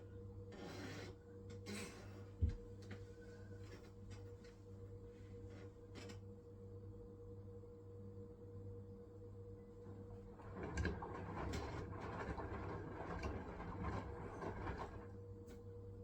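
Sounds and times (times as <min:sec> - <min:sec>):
washing machine humming: 0:08.3 - 0:16.0.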